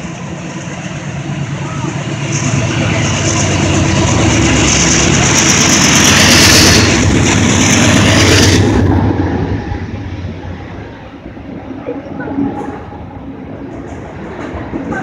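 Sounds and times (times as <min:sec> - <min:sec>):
train wheels rumbling on rails: 0:00.0 - 0:15.0
hissing roar: 0:01.5 - 0:11.0.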